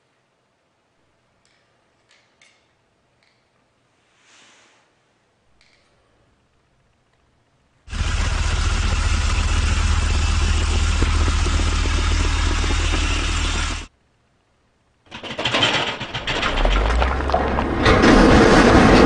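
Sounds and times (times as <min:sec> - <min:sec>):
truck engine rumbling: 0:07.9 - 0:13.9, 0:15.1 - 0:19.0
loud clattering: 0:15.1 - 0:19.0.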